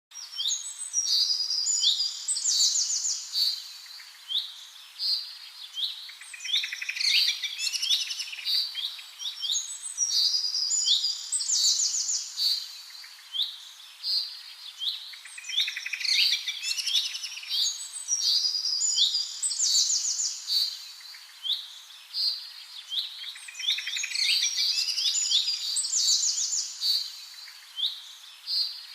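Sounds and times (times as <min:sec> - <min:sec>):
songbirds chirping: 0:00.1 - 0:28.9.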